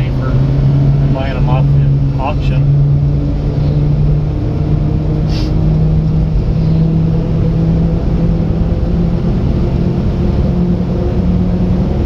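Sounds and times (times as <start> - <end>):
road noise: 0.0 - 12.0
small truck engine running: 0.0 - 12.0.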